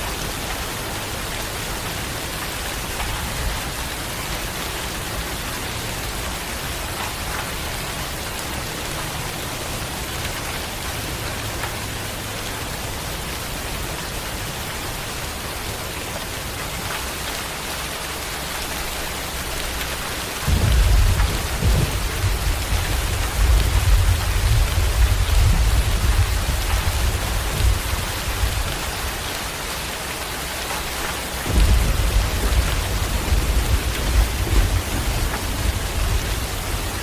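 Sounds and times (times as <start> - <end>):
steady rain hiss: 0.0 - 37.0
thunder rumble: 20.4 - 29.2, 31.4 - 37.0.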